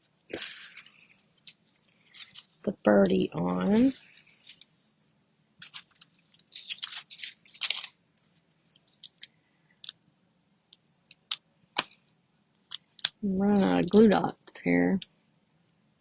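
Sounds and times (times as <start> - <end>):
crinkly paper rustles: 0.3 - 4.8, 5.6 - 9.4.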